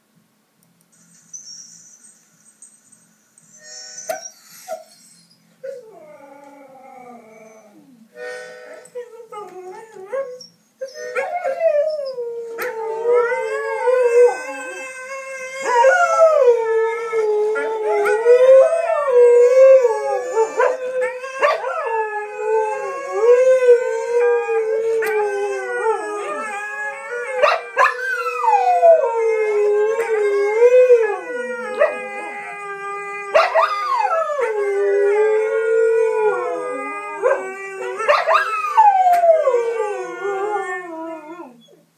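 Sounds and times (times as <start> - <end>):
dog howling: 11.1 - 41.6.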